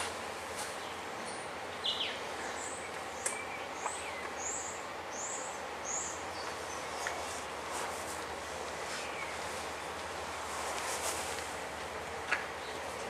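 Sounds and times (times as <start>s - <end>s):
background hiss and hum: 0.0s - 13.0s
small bird chirping: 0.8s - 7.3s.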